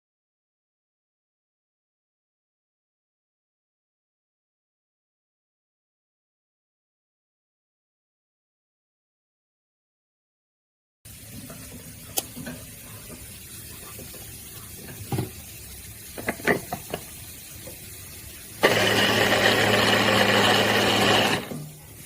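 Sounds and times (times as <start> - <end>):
electric chopper motor running: 18.6 - 21.7.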